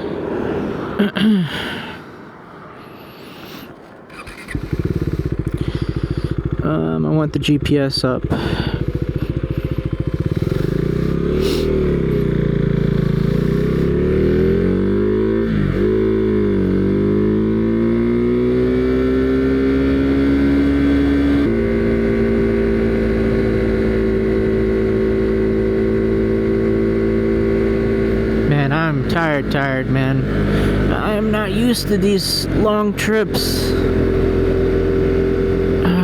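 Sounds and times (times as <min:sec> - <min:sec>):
motorcycle engine accelerating: 0:04.1 - 0:36.0.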